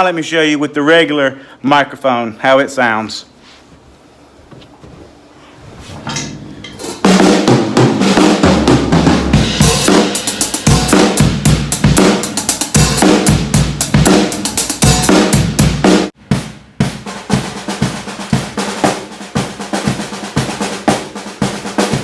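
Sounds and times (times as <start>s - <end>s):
drum kit playing a busy groove: 6.6s - 22.0s.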